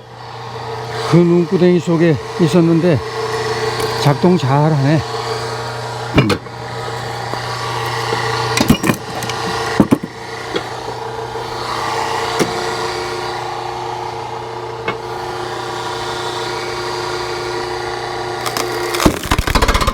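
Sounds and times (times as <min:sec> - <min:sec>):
small engine running: 0:00.0 - 0:19.9
wood knocks and cracks: 0:18.4 - 0:19.9.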